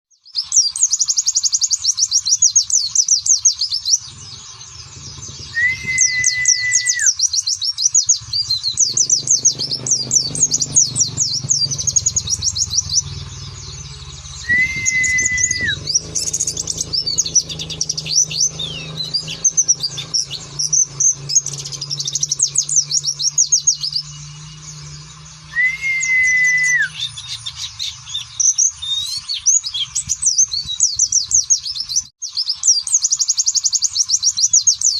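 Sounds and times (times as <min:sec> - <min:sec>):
bird twittering and chirping: 0:00.1 - 0:34.9
low hum: 0:04.0 - 0:07.2, 0:07.9 - 0:27.5
level whistle dropping at end: 0:05.5 - 0:07.1, 0:14.4 - 0:15.8, 0:25.5 - 0:27.0.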